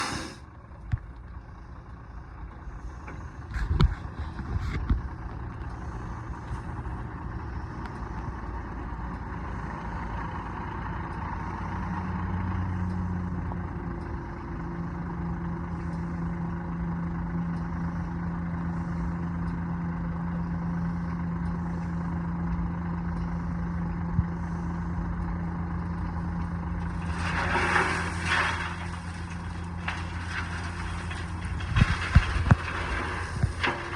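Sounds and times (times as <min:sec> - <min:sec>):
rush of noise: 0:00.0 - 0:00.4
truck engine running: 0:00.0 - 0:33.9.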